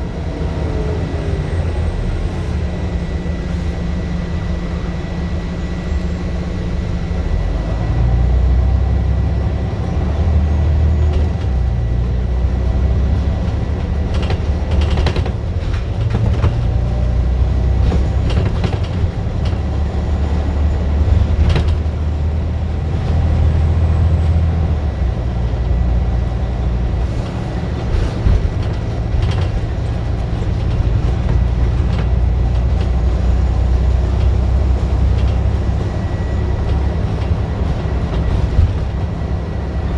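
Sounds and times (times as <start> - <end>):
bus engine accelerating: 0.0 - 39.9
sharp rattles and knocks: 13.4 - 17.1, 27.2 - 39.3.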